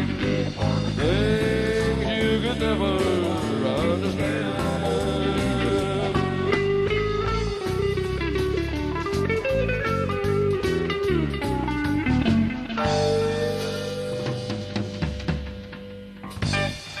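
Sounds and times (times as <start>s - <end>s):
country rock band playing: 0.0s - 17.0s
guitar: 0.0s - 17.0s.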